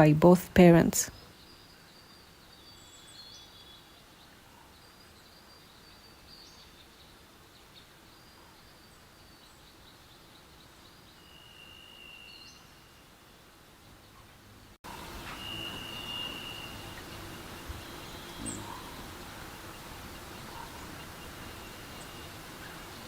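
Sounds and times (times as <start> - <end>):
background hiss: 0.0 - 23.0
bird chirps and trills: 13.8 - 23.0
long level whistle: 15.2 - 18.9.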